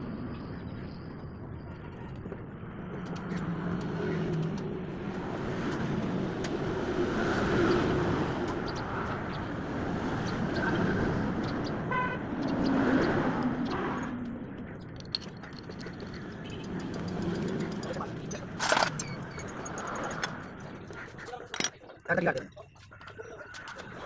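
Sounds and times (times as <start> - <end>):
road traffic passing: 0.0 - 24.0
car horn toot: 11.9 - 12.2.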